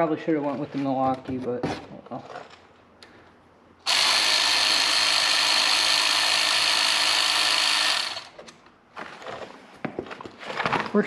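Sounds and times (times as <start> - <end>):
impact wrench running: 3.8 - 8.4.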